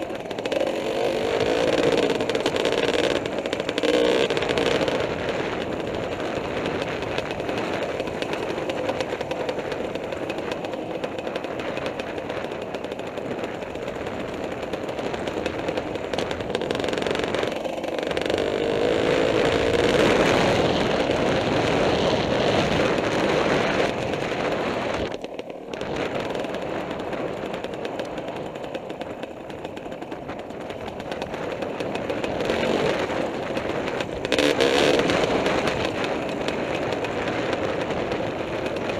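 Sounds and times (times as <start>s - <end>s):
dirt bike engine revving: 0.0s - 10.6s, 15.5s - 26.4s, 32.0s - 38.9s.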